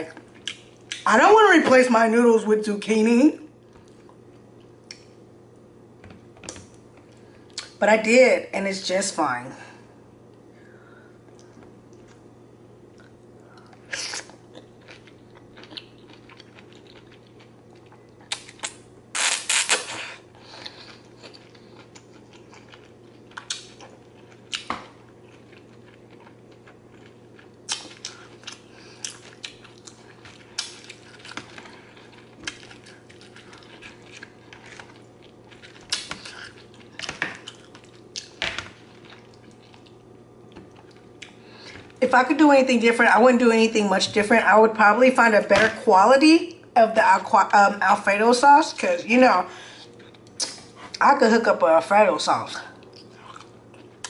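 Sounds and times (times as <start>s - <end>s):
chewing and wet mouth sounds: 11.2s - 19.8s, 20.4s - 42.0s, 49.8s - 51.0s, 52.8s - 54.0s.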